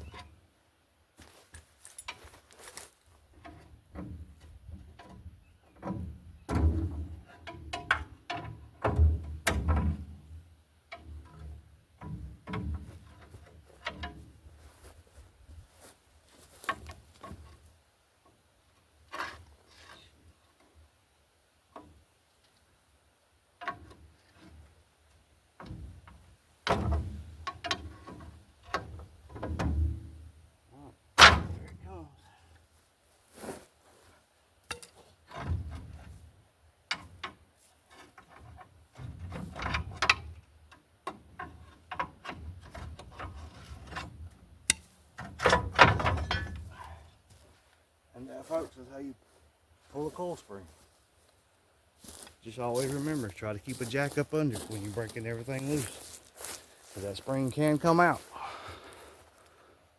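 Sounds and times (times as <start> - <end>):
metal clunks and rattles: 3.4 - 10.3, 10.9 - 14.4, 25.6 - 30.3, 31.2 - 31.8, 34.7 - 36.3, 38.0 - 46.8.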